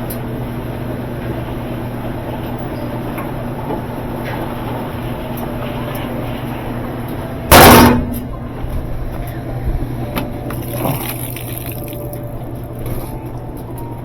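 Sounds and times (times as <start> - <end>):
washing machine humming: 0.0 - 14.0
loud crash: 7.5 - 8.2.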